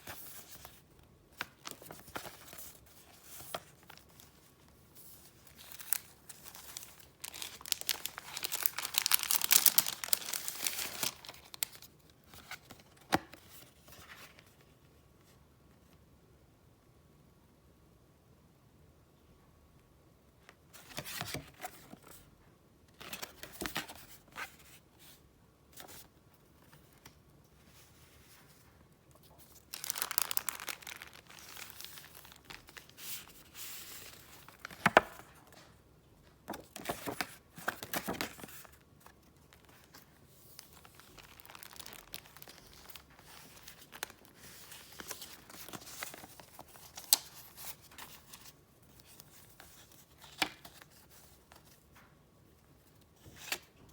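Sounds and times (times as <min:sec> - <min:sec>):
wrapping paper crinkling: 0:05.3 - 0:11.9, 0:29.4 - 0:34.8, 0:39.4 - 0:49.2.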